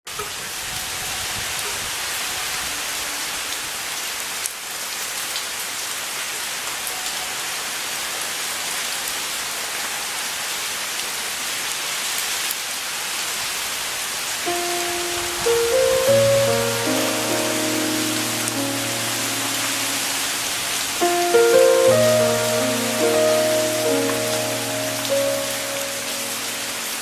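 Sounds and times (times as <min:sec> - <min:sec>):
steady hiss with faint ticks: 0:14.4 - 0:27.0.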